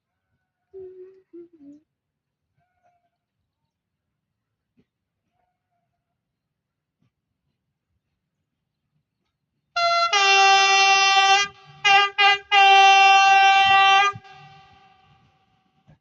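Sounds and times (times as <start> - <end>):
train horn blasts: 9.8 - 15.3.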